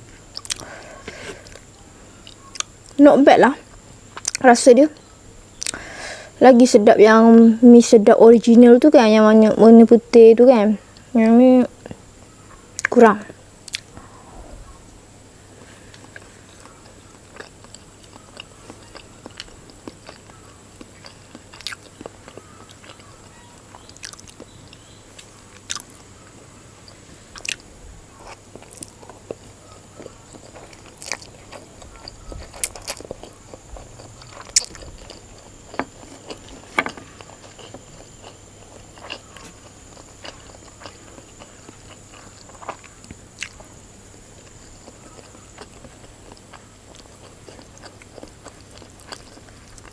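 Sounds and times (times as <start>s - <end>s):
person chewing noodles: 0.3s - 2.8s, 15.7s - 26.2s, 26.8s - 49.9s.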